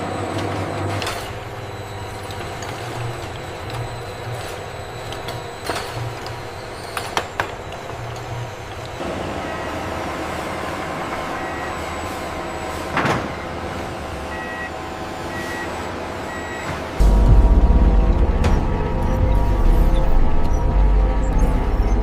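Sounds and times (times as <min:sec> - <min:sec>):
factory machinery humming: 0:00.0 - 0:22.0
loud deep rumble: 0:17.0 - 0:22.0.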